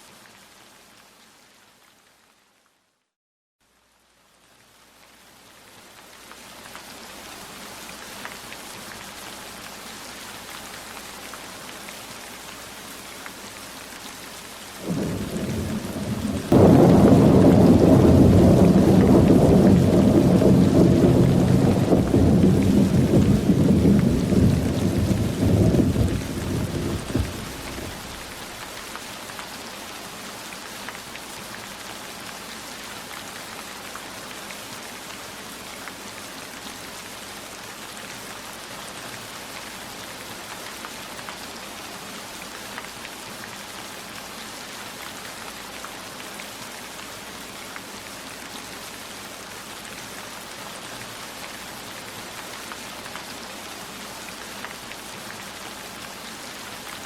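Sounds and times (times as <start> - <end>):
steady rain falling: 0.0 - 2.8, 3.6 - 57.0
raindrops ticking: 14.9 - 28.8.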